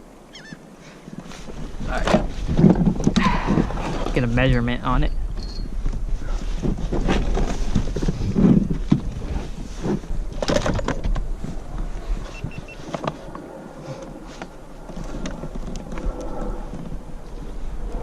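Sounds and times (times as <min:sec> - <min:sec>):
rustling: 0:00.4 - 0:04.4, 0:05.3 - 0:17.8.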